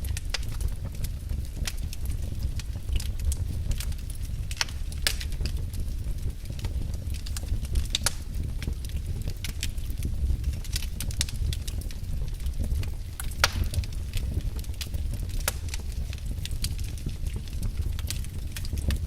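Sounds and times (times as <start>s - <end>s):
low fire rumble: 0.0s - 19.0s
wood fire crackling and popping: 0.0s - 19.0s.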